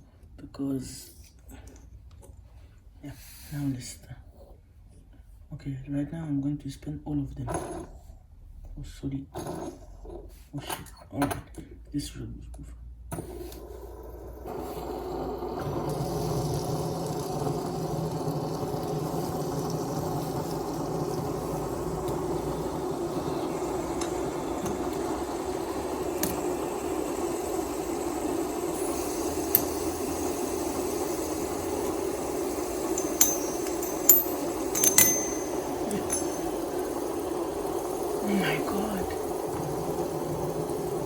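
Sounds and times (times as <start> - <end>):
fidget spinners whirring: 13.4 - 41.0
sharp clicks and clinks: 28.8 - 38.2.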